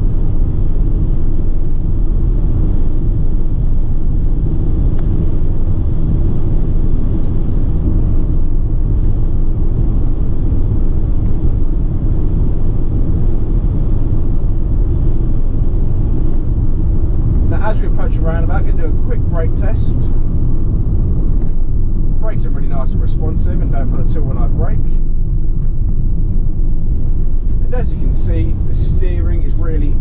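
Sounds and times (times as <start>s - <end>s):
diesel engine rumble: 0.0s - 30.0s
tyre and road noise: 0.0s - 30.0s.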